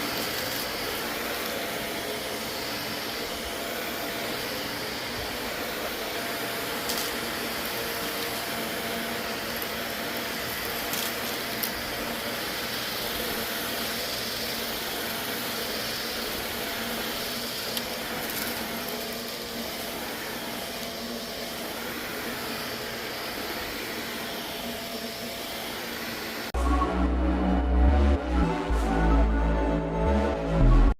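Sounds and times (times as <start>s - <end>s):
vacuum cleaner running: 0.0s - 30.9s
music: 26.6s - 30.9s.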